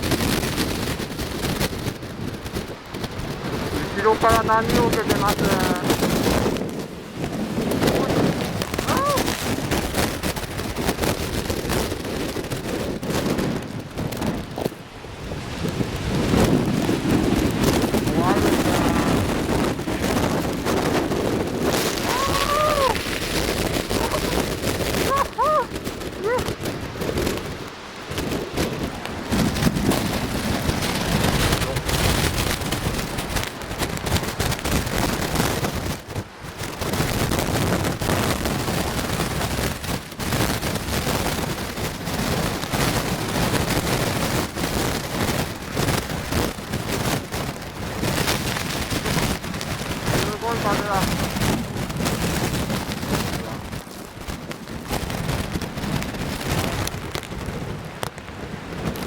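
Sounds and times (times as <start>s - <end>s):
heavy surf: 0.0s - 59.0s
strong wind buffeting microphone: 0.0s - 59.0s.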